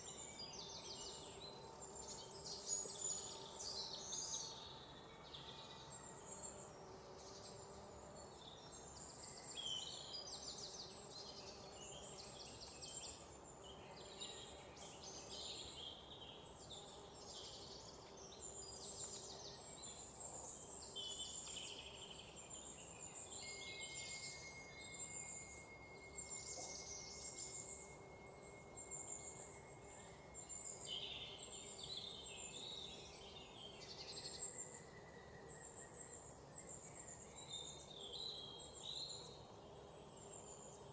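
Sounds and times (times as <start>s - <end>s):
faint ambient hiss: 0.0s - 40.9s
songbirds chirping and trilling: 0.0s - 40.9s
thin steady high tone: 19.1s - 38.0s.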